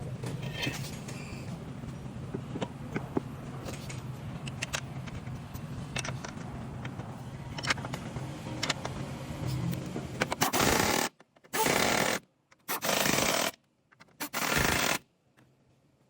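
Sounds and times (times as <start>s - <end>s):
impact wrench bursts: 10.3s - 13.6s, 14.2s - 15.0s.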